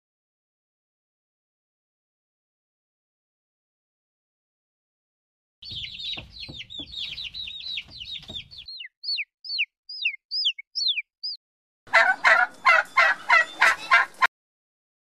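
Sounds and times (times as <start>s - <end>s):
baby chicks peeping: 5.6s - 14.3s
turkey gobbling: 5.7s - 14.3s.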